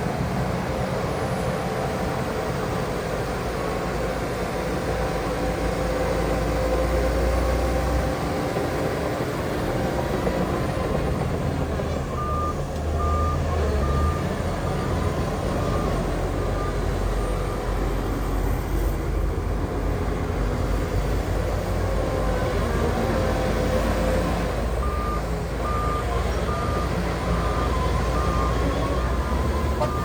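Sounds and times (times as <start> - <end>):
reversing alarm beeping: 12.2 - 17.8, 24.8 - 30.0.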